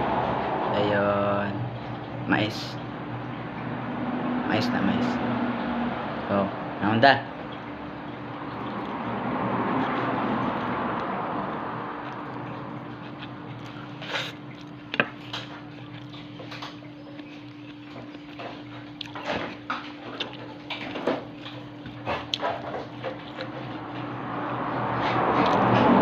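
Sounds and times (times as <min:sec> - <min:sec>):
low hum: 0:00.0 - 0:21.8
wet chewing: 0:07.5 - 0:24.2.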